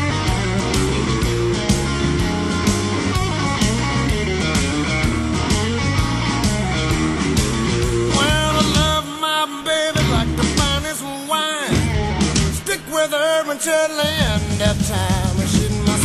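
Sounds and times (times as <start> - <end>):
bass: 0.0 - 9.0, 9.9 - 11.0, 11.7 - 12.8, 14.1 - 16.0
steady drum beat: 0.0 - 9.0, 10.0 - 11.0, 11.7 - 12.9, 14.0 - 16.0
electric guitar: 0.0 - 16.0.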